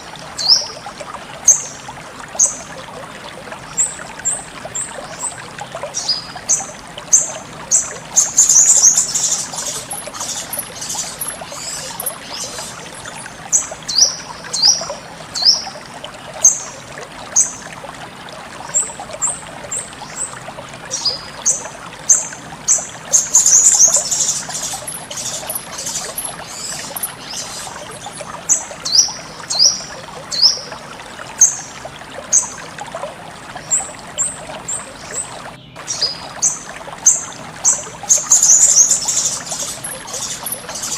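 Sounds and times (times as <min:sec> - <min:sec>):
water trickling: 0:00.0 - 0:40.9
bird chirping: 0:06.0 - 0:15.6, 0:20.9 - 0:30.6, 0:35.6 - 0:40.9
bird trilling: 0:07.7 - 0:12.8, 0:22.7 - 0:27.8.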